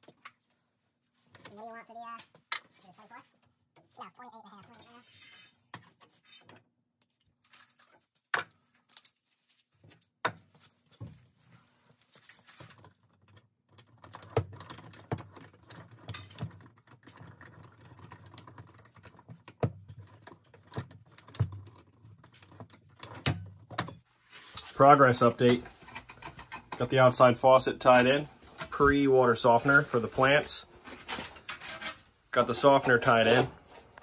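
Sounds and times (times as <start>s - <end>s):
tools clicking and knocking: 12.7s - 24.0s, 25.4s - 26.9s.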